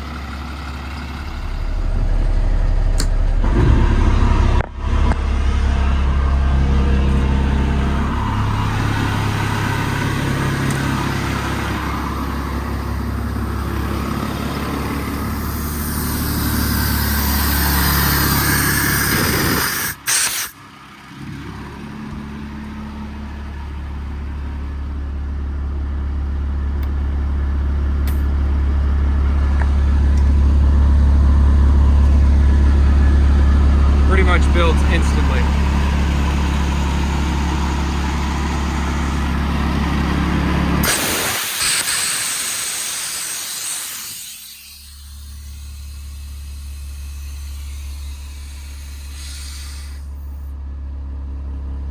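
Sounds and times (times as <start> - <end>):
diesel engine drone: 0.0 - 51.9
air hissing: 15.1 - 20.6, 40.8 - 50.4.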